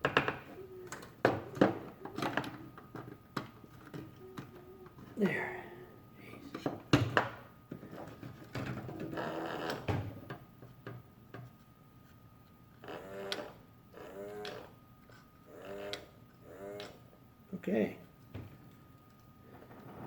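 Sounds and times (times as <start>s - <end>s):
toy mechanism clicking and rattling: 15.5s - 17.0s.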